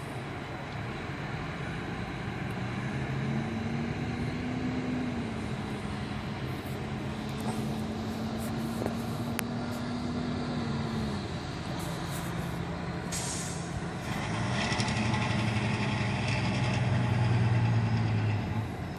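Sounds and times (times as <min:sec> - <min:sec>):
diesel engine running: 0:00.0 - 0:18.9
air brake hiss: 0:13.1 - 0:13.8.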